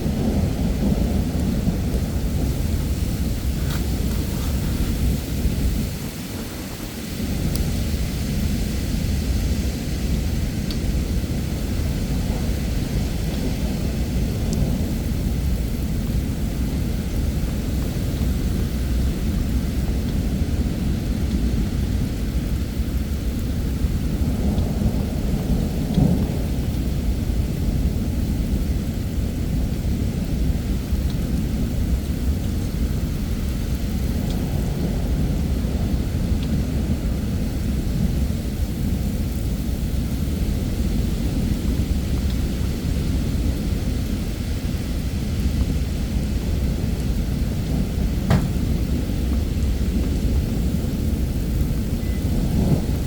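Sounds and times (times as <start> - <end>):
rolling thunder rumble: 0.0 - 53.0
steady rain: 0.0 - 53.0
sharp thunder crack: 47.3 - 53.0.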